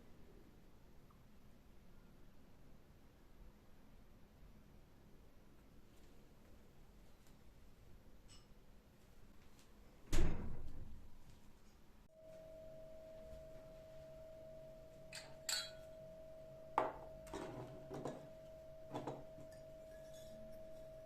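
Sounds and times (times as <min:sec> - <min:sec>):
dishes clinking: 0:14.2 - 0:21.0.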